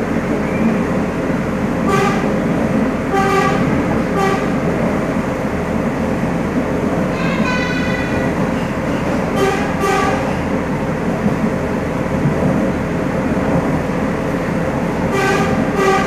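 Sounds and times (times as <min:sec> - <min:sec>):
train rumbling: 0:00.0 - 0:16.0
train horn toots: 0:01.9 - 0:02.3, 0:03.1 - 0:04.6, 0:07.1 - 0:08.4, 0:09.3 - 0:10.3, 0:15.1 - 0:16.0.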